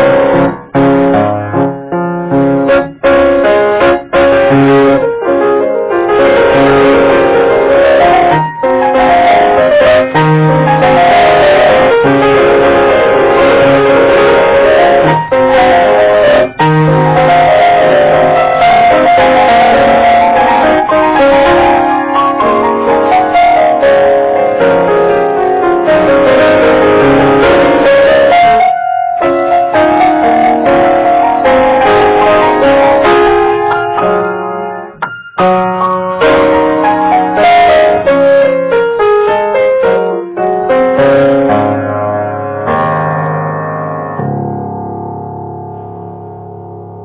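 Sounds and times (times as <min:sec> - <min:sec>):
piano playing: 0:00.0 - 0:47.0.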